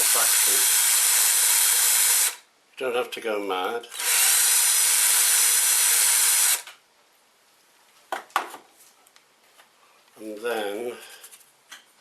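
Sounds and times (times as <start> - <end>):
cordless drill running: 0.0 - 2.4, 3.9 - 6.7.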